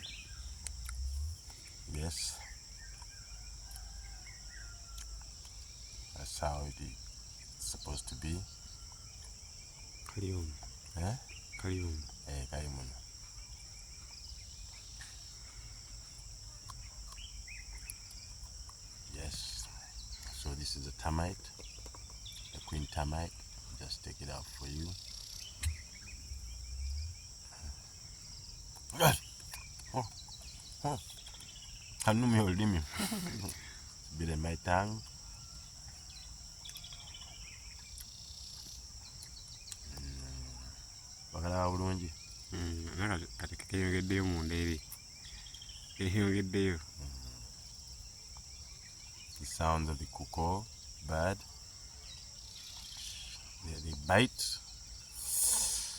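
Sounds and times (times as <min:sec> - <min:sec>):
bird chirps: 0:00.0 - 0:55.9
crickets chirping: 0:00.0 - 0:55.9
low outdoor rumble: 0:22.2 - 0:31.2
low human voice: 0:28.9 - 0:29.3, 0:39.8 - 0:40.7, 0:41.6 - 0:43.4, 0:46.2 - 0:47.4.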